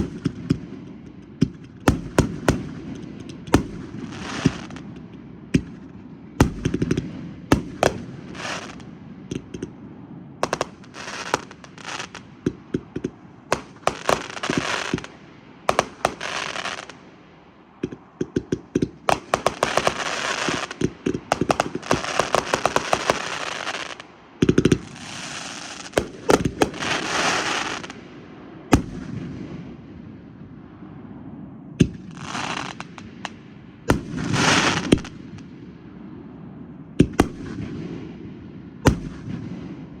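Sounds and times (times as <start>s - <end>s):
fireworks bangs: 0.0s - 9.8s, 10.4s - 17.2s, 17.8s - 28.1s, 31.8s - 35.6s, 37.0s - 40.0s
fireworks popping and crackling: 0.0s - 9.8s, 10.4s - 17.2s, 17.8s - 28.0s, 31.8s - 35.5s, 37.0s - 38.1s, 38.9s - 40.0s.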